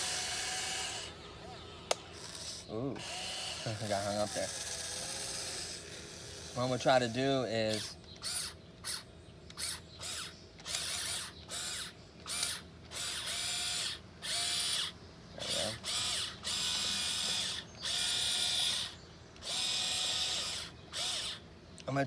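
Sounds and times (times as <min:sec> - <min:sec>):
excavator electric motors whining: 0:00.0 - 0:21.5.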